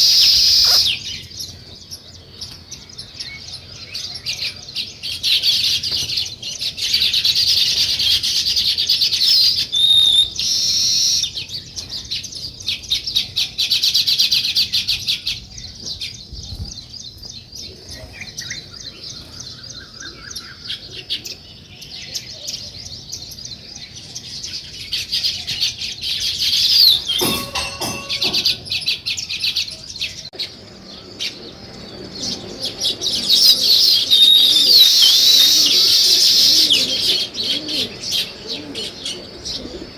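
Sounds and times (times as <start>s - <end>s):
sparrows chirping: 0.0s - 39.9s
rattling clatter: 27.0s - 29.0s.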